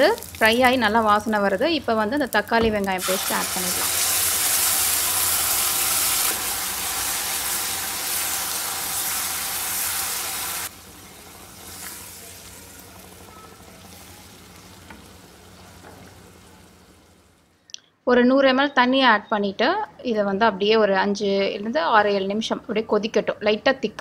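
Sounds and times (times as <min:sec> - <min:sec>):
paste sizzling in hot oil: 0:02.9 - 0:14.7.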